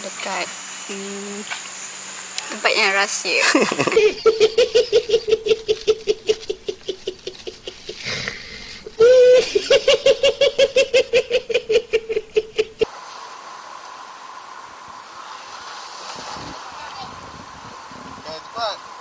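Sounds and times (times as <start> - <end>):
person laughing: 3.4 - 12.9.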